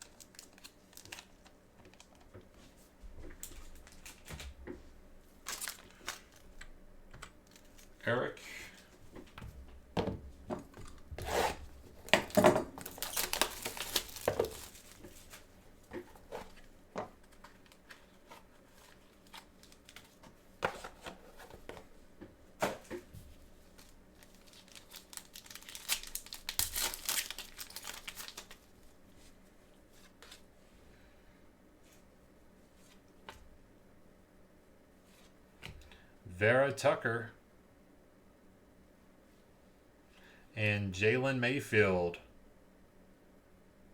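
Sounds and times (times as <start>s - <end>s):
packaging tearing and crinkling: 0.0s - 2.2s, 3.5s - 4.4s, 5.4s - 6.5s, 11.2s - 15.4s, 18.8s - 20.2s, 23.7s - 28.8s.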